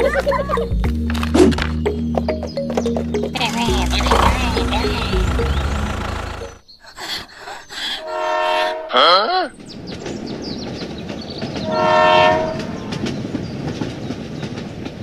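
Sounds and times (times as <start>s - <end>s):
train running: 3.1s - 6.6s, 7.5s - 15.0s
train horn blasts: 8.0s - 9.0s, 11.6s - 12.9s.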